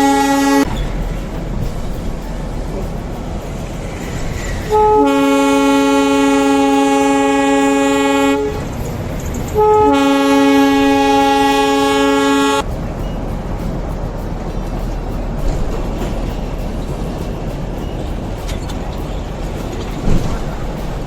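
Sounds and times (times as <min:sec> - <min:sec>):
train horn blasts: 0:00.0 - 0:01.0, 0:04.7 - 0:08.9, 0:09.6 - 0:12.7
train running rumble: 0:00.0 - 0:21.0.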